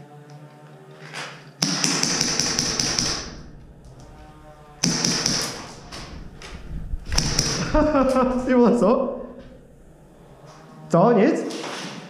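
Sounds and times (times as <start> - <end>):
airsoft gun rapid clicking with whine: 1.6 - 8.7.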